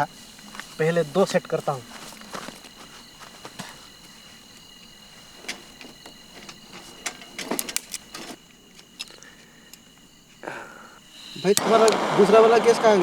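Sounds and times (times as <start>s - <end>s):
high insect trill: 0.0s - 13.0s
camp cooking gear clattering: 5.2s - 9.1s.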